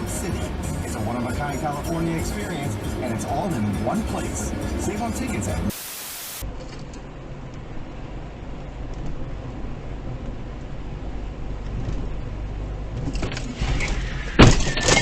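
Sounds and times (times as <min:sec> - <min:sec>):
car road rumble: 0:00.0 - 0:05.7, 0:06.4 - 0:15.0
vehicle collision impact: 0:13.0 - 0:15.0
breaking and clinking debris: 0:13.8 - 0:15.0.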